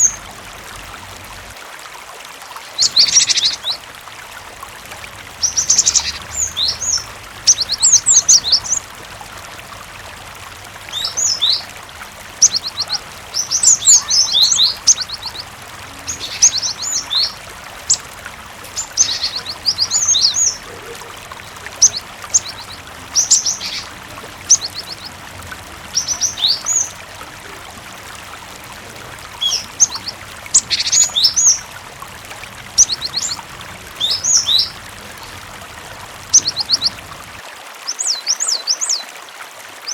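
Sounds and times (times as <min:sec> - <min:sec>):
running water: 0:00.0 - 0:39.9
bird chirping and trilling: 0:02.8 - 0:03.8, 0:05.4 - 0:08.8, 0:10.9 - 0:27.6, 0:29.2 - 0:31.8, 0:32.7 - 0:35.5, 0:36.2 - 0:37.2.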